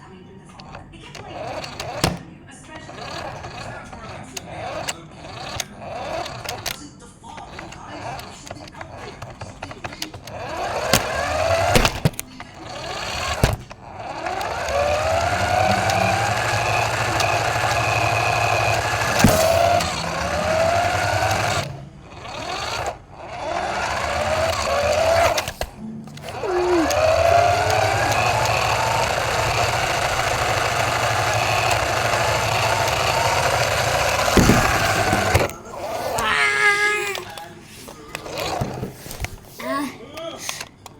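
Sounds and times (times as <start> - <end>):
rc car motor whining: 0.0 - 39.4
thump: 19.1 - 20.0, 34.4 - 35.5.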